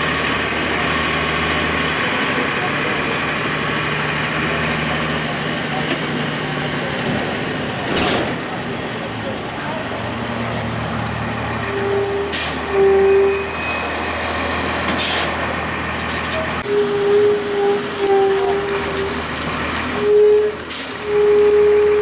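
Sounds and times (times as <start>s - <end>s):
bus diesel engine rumbling: 0.0s - 22.0s
air brakes hissing: 11.0s - 14.1s, 14.9s - 15.4s, 19.2s - 22.0s.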